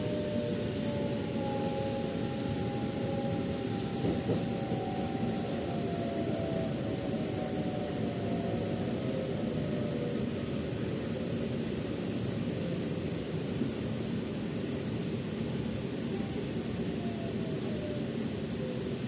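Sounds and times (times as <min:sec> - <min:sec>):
train wheels rumbling: 0:00.0 - 0:11.4
train bump: 0:04.0 - 0:04.9.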